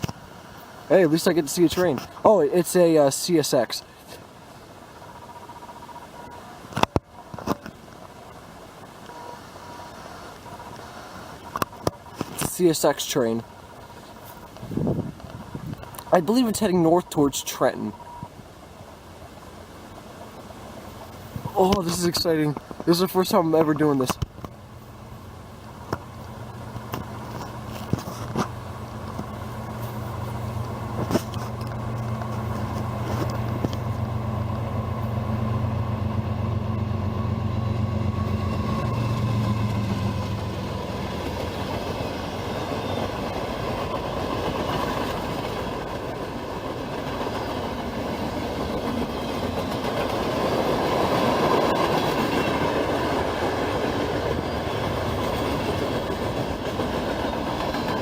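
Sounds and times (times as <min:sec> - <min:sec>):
locomotive engine drone: 0:00.0 - 0:58.0
freight cars clickety-clack: 0:25.7 - 0:58.0.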